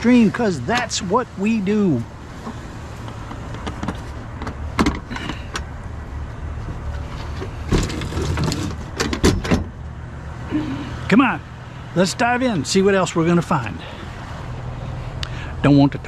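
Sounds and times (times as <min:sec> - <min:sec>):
vehicle engine humming: 0:00.0 - 0:16.0
sharp knocks and clatters: 0:03.0 - 0:05.7, 0:06.6 - 0:09.8.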